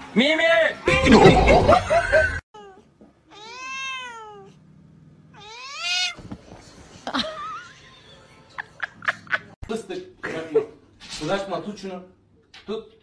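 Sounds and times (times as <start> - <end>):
cat meowing: 2.6 - 4.6, 5.4 - 6.2.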